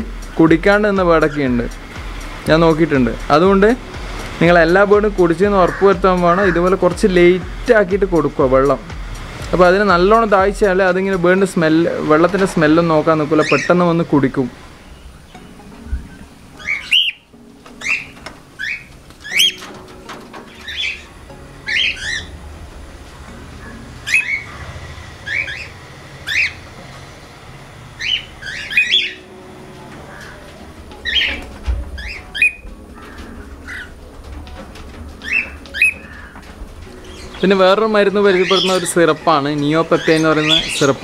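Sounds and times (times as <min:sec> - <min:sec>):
cockatiels squawking: 0:13.4 - 0:13.8, 0:16.1 - 0:22.4, 0:23.6 - 0:26.7, 0:28.0 - 0:29.3, 0:30.1 - 0:34.0, 0:35.2 - 0:41.0.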